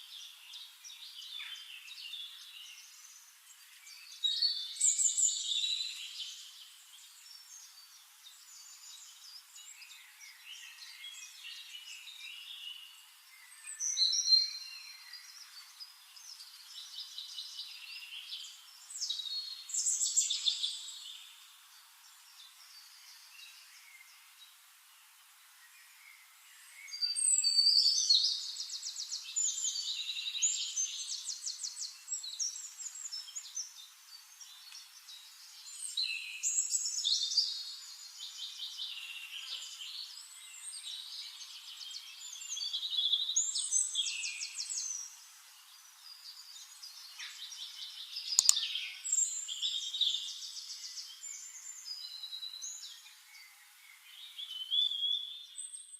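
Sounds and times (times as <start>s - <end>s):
songbird singing trills: 0.0s - 24.5s, 25.6s - 55.9s
sharp click: 48.4s - 48.7s.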